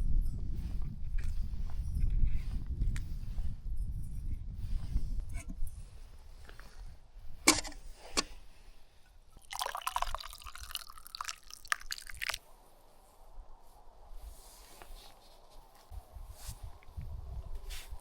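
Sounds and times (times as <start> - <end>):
liquid pouring and splashing: 9.4 - 12.4.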